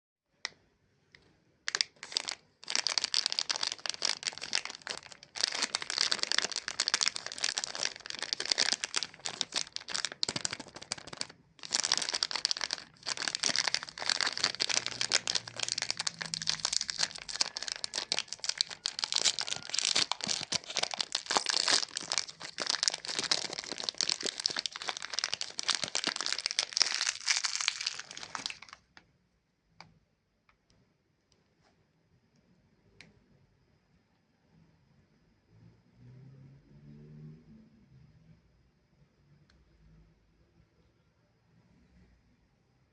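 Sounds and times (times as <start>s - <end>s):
plastic wrappers crinkling: 1.7s - 28.9s.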